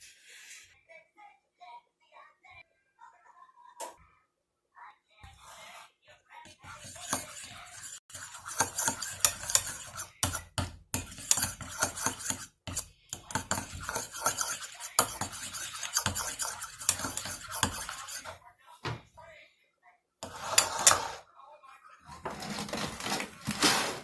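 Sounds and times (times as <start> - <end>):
spoon stirring and scraping in bowl: 5.2 - 18.5, 20.2 - 24.0.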